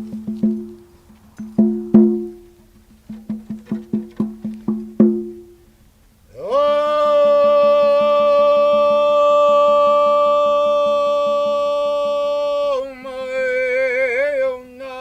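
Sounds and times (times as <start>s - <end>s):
fast pulsing beat: 0.0s - 5.6s.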